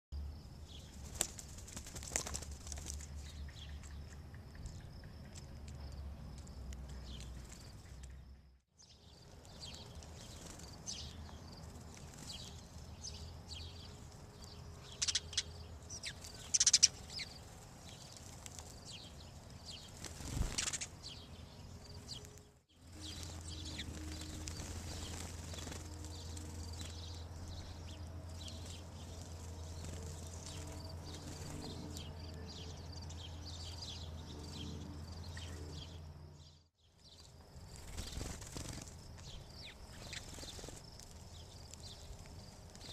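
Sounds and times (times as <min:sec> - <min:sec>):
sparrows chirping: 0:00.3 - 0:42.9
wing flutters: 0:00.8 - 0:03.4, 0:09.1 - 0:32.2, 0:37.2 - 0:42.9.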